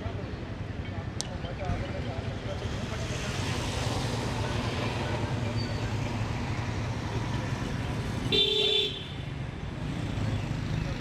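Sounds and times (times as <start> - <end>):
low rumble of traffic: 0.0 - 11.0
vehicle horn honk: 8.3 - 9.2.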